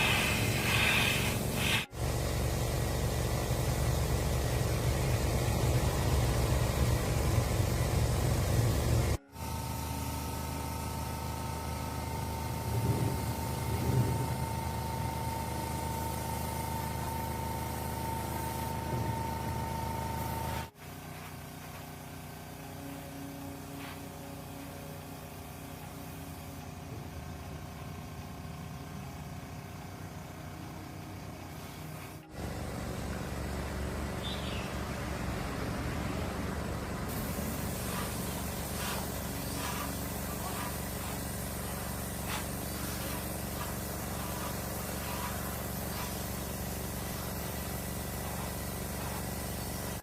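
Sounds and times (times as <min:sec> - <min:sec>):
air compressor motor humming: 0:00.0 - 0:50.0
machine running with thin whine: 0:00.0 - 0:50.0
machine motor humming: 0:32.2 - 0:50.0.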